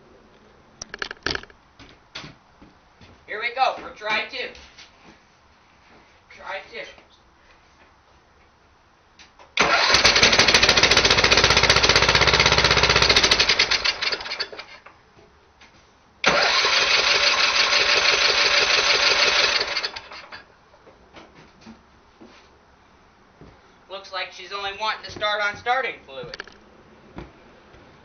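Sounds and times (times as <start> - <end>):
small engine cranking and firing: 9.6 - 14.9, 16.2 - 20.4.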